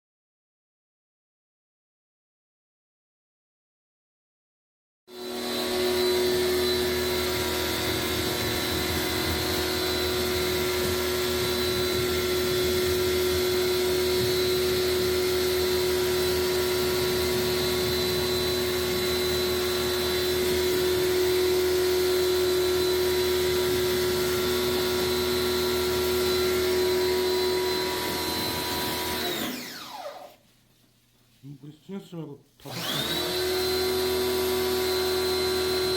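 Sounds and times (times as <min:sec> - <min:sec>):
small electric motor whining: 0:05.1 - 0:30.4, 0:32.6 - 0:35.9.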